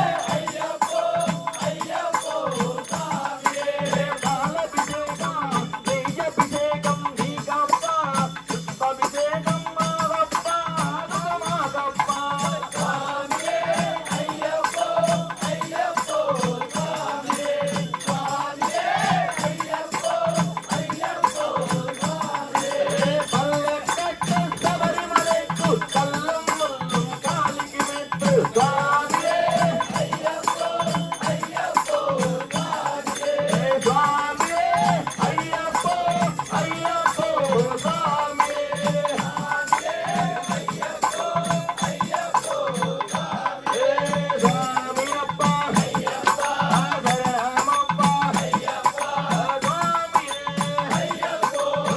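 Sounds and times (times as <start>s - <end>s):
drum beat: 0.0s - 51.9s
jingling hand percussion: 0.0s - 51.9s
voices singing: 0.0s - 51.9s.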